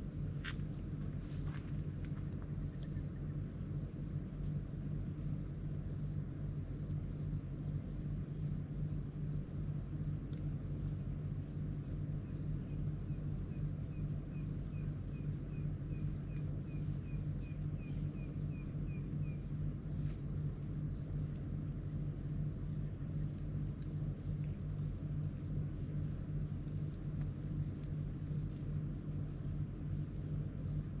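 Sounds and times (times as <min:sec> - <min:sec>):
high insect drone: 0:00.0 - 0:31.0.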